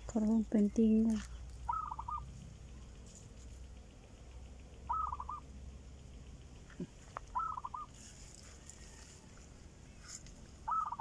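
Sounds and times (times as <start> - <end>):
bird calling: 1.2 - 2.4, 4.8 - 5.6, 6.7 - 9.1, 9.9 - 11.0.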